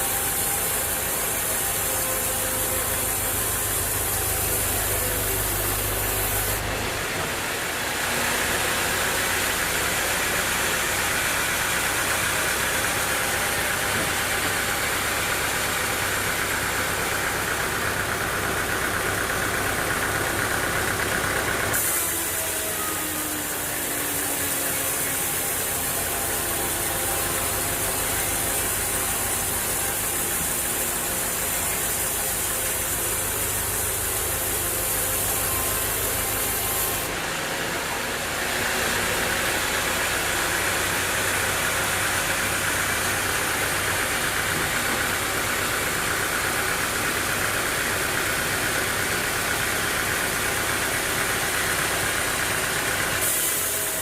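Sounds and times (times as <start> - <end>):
sawmill engine running: 0.0 - 54.0
loud hiss: 50.2 - 54.0.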